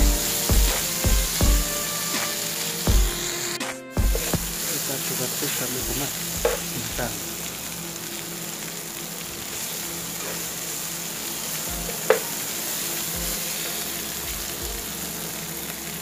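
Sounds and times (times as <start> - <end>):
paste sizzling in oil: 0.0 - 16.0
sharp tap: 6.4 - 6.6.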